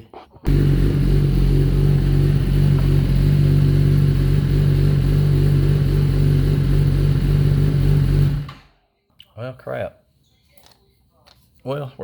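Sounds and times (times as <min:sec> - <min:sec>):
motorcycle engine idling: 0:00.5 - 0:08.7.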